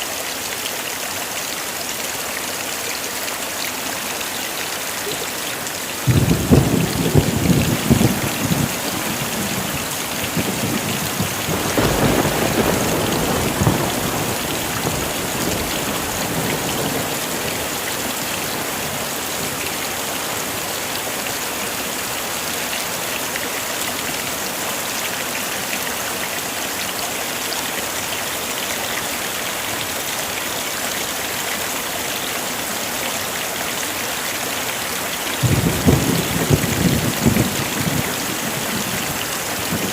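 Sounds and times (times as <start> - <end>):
heavy rain: 0.0 - 39.9
thunder rumbling: 6.0 - 18.8, 35.4 - 39.9.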